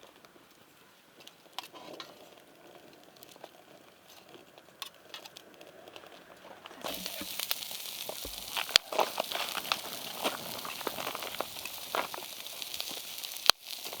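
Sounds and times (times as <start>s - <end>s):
wood fire crackling: 0.0s - 14.0s
food sizzling hiss: 6.7s - 14.0s.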